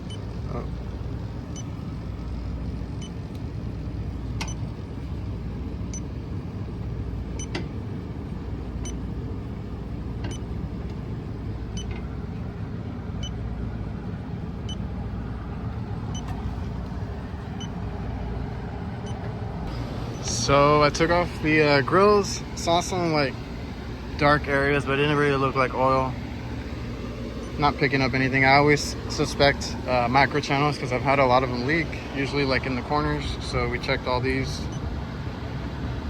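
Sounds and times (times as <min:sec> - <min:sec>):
leak detector ticking: 0:00.0 - 0:00.4, 0:04.4 - 0:04.7, 0:05.8 - 0:06.2, 0:07.4 - 0:07.6, 0:08.8 - 0:09.1
rooftop unit rumble: 0:00.0 - 0:36.0.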